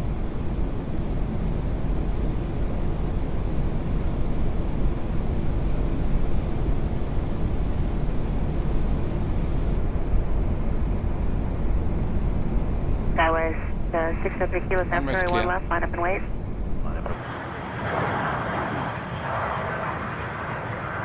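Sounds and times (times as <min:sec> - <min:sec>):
airflow and engine rumble: 0:00.0 - 0:21.0.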